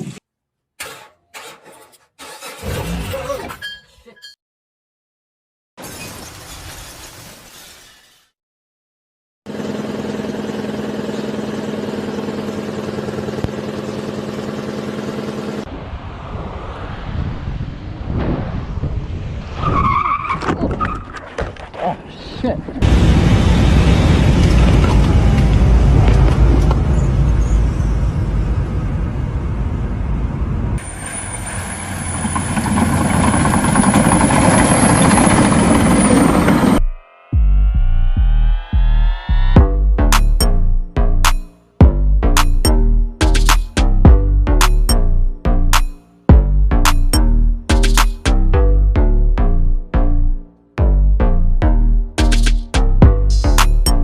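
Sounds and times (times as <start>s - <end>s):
vehicle engine running steadily: 9.5s - 15.7s
noisy vehicle sound: 9.5s - 54.0s.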